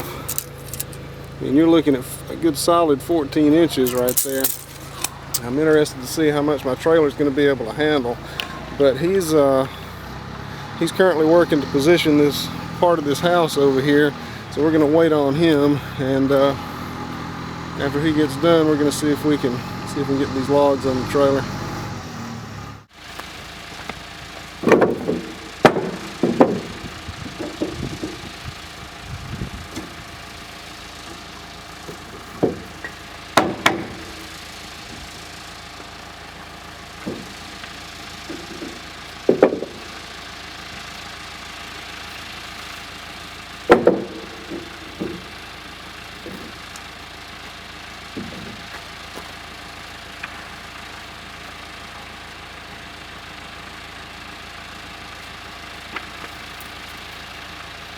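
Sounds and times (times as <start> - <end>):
engine idling: 0.0 - 57.9
heavy clunks and knocks: 24.6 - 28.4, 31.9 - 34.2, 37.0 - 40.0, 43.6 - 45.4, 46.2 - 46.6, 48.1 - 48.7.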